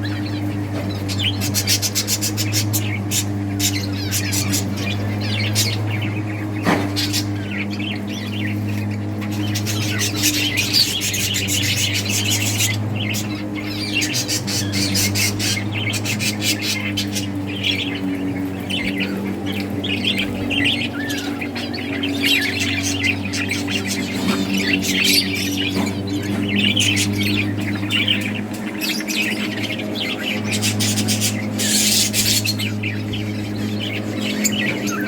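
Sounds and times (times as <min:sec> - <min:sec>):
budgerigars chirping and chattering: 0:00.0 - 0:35.0.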